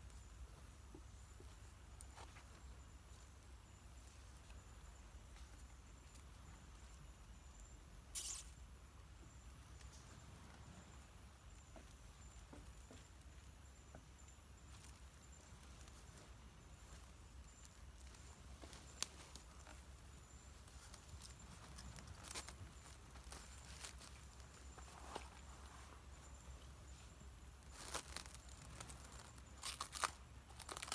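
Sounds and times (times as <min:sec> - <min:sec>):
soft rustles: 0:14.6 - 0:30.9.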